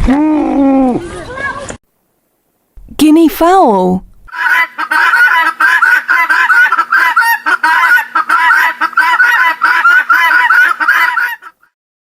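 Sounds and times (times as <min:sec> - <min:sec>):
guineafowl harsh calls: 0:04.3 - 0:11.8.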